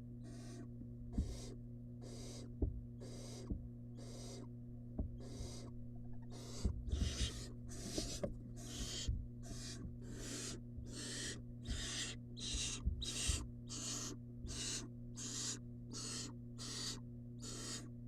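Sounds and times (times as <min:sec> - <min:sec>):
owl chick hissing: 0:00.2 - 0:04.5, 0:05.2 - 0:17.9
soft thumps: 0:02.6 - 0:02.8, 0:04.9 - 0:10.0.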